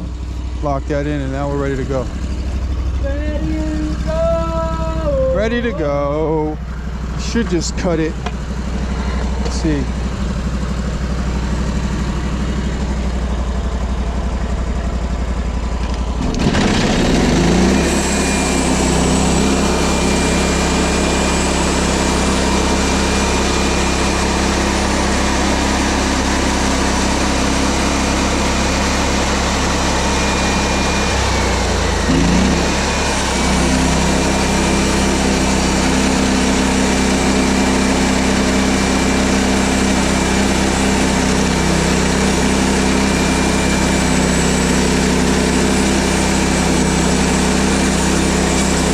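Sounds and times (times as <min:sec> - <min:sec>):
small gasoline engine running: 0:00.0 - 0:48.9
band saw blade whining: 0:15.8 - 0:48.9.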